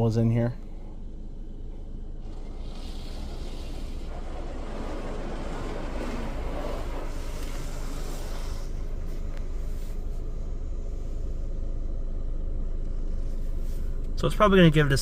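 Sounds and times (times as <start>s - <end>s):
car wash low rumble: 0.0s - 15.0s
water spray hiss: 2.3s - 10.1s.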